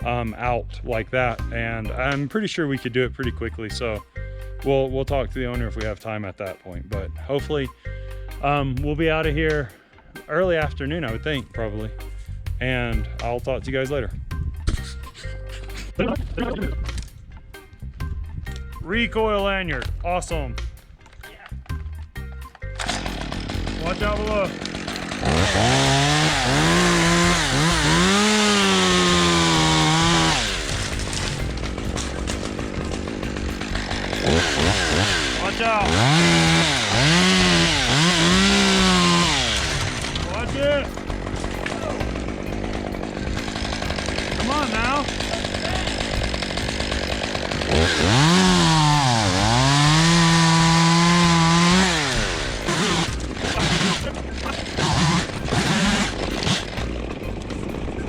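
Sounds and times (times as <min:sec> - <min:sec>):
chainsaw cutting wood: 0:21.6 - 0:58.0.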